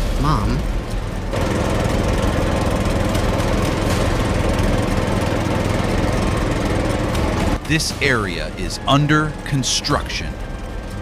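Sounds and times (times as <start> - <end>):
heavy machinery engines droning: 0.0 - 11.0.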